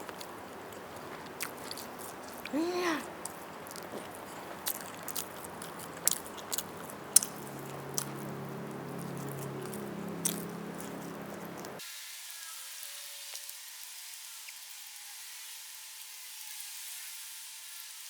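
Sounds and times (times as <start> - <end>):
chewing and biting: 0.0 - 11.8
wet mouth clicks: 0.0 - 11.8.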